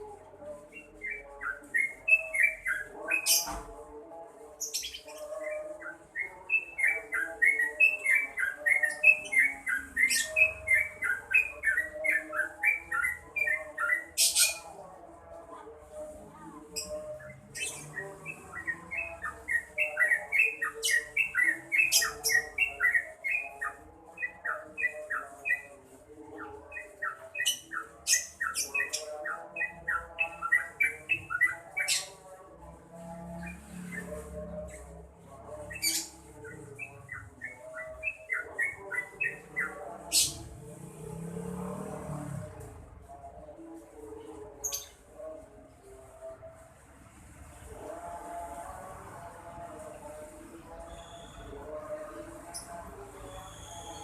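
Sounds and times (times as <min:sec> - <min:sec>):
bird singing bright notes: 0:00.7 - 0:03.7, 0:16.8 - 0:25.7, 0:50.9 - 0:51.5.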